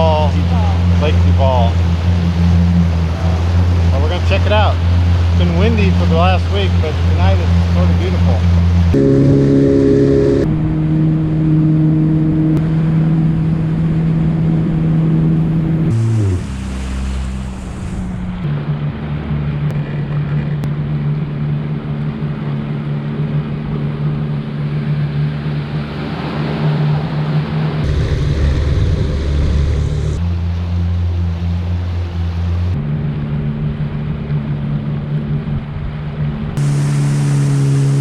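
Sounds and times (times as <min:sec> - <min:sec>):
water rushing: 0:00.0 - 0:21.8, 0:24.2 - 0:33.1, 0:36.6 - 0:38.0
jet ski engine running: 0:00.0 - 0:38.0
wind noise: 0:27.7 - 0:30.2.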